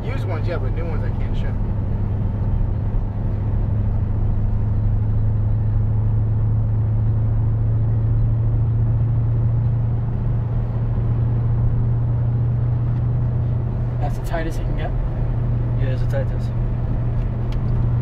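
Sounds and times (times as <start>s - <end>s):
car engine drone from cabin: 0.0s - 18.0s.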